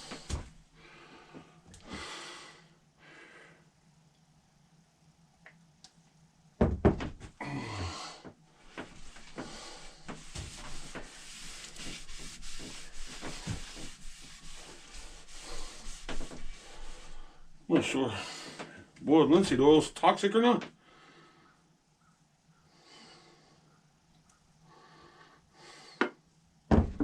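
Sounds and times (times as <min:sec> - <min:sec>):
oil rubbed into wooden handle: 0:08.9 - 0:17.5.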